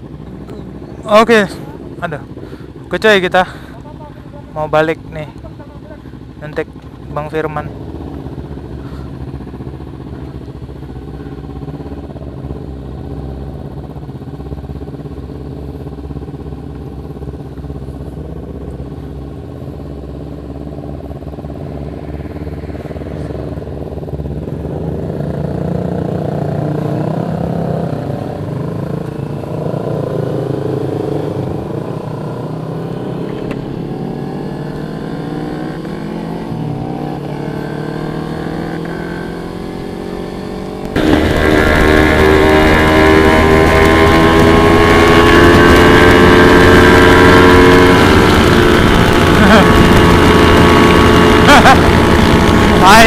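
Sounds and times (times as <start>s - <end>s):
motorcycle engine running: 0.0s - 53.0s
road and wind noise: 0.0s - 53.0s.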